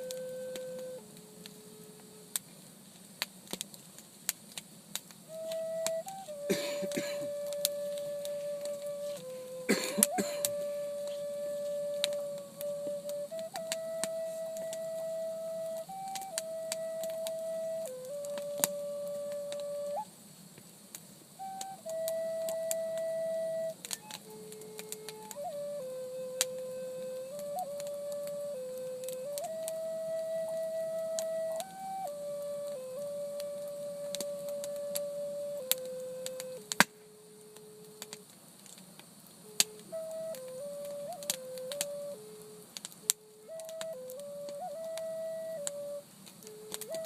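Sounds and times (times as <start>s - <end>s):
slow flute-like melody: 0.0s - 3.7s, 4.9s - 20.1s, 21.3s - 47.0s
sharp crackling clicks: 0.0s - 47.0s.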